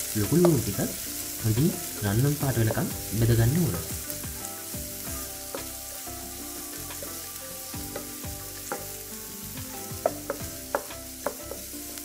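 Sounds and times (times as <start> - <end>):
onions sizzling in oil: 0.0 - 12.0
wooden spatula knocking pan: 0.3 - 0.7, 2.5 - 4.4, 5.2 - 5.8, 6.9 - 9.0, 9.6 - 11.7.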